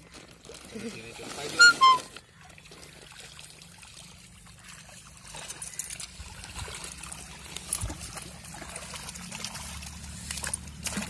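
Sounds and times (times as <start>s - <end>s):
water trickling and splashing: 0.0s - 11.0s.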